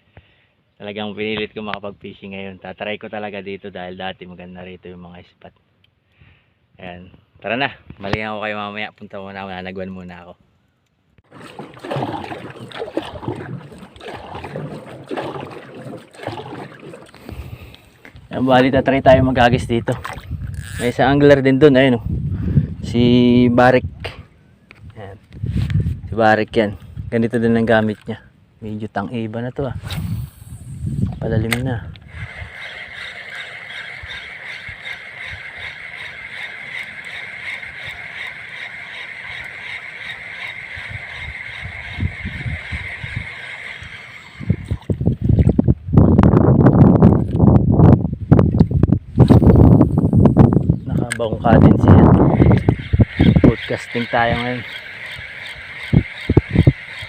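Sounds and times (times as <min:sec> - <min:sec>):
paddle strokes splashing in water: 0:11.3 - 0:17.6, 0:32.2 - 0:45.5
fishing reel whirring: 0:20.4 - 0:21.0, 0:32.1 - 0:44.9, 0:52.2 - 0:57.0.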